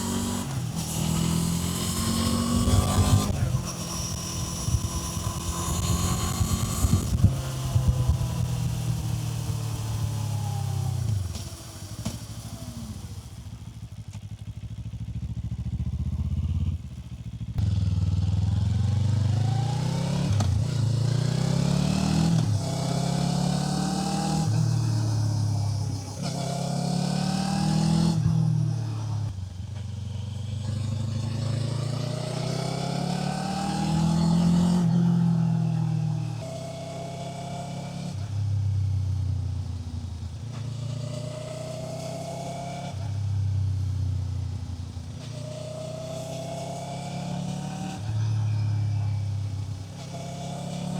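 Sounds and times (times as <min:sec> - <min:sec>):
motorcycle engine accelerating: 0:00.0 - 0:50.9
wind noise: 0:02.3 - 0:09.0.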